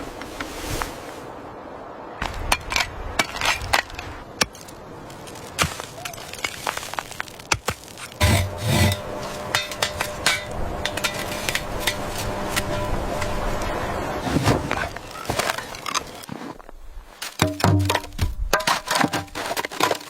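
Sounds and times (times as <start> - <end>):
hard objects knocking and clinking: 8.2 - 12.0.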